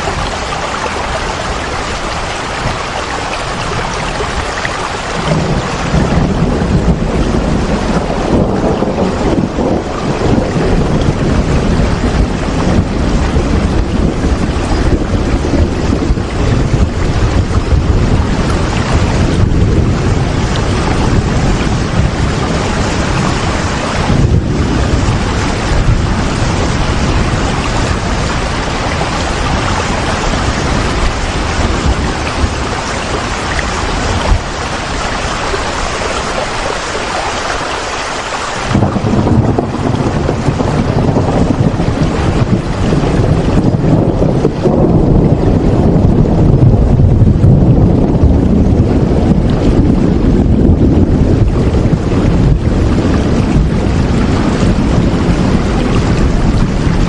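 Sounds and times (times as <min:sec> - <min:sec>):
heavy rain hiss: 0:00.0 - 0:44.9
wind low rumble: 0:00.0 - 0:57.0.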